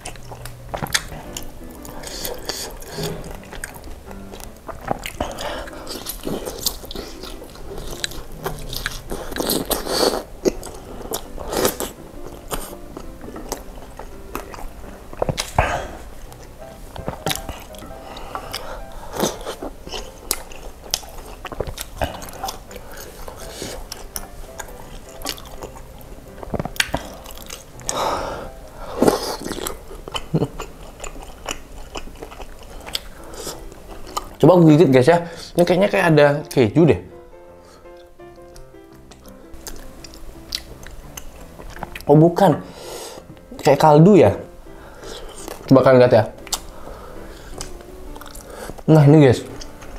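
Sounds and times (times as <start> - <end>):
person biting and wet chewing: 0.0 - 34.4, 37.9 - 42.1, 45.0 - 45.7, 46.4 - 48.9.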